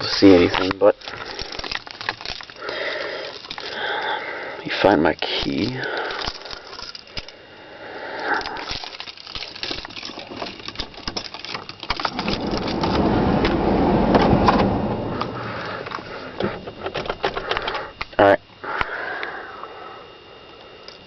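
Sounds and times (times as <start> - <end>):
keys rattling and clicking: 0.0 - 4.2, 5.2 - 7.4, 8.2 - 13.8
truck engine starting and running: 12.0 - 17.9.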